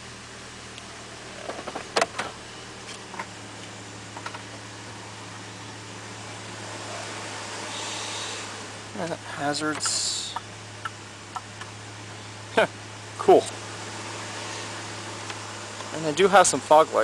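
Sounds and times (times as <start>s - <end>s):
low hum in truck cab: 0.0s - 17.0s
hiss: 6.7s - 8.8s
dashboard buttons clicking: 9.7s - 10.0s.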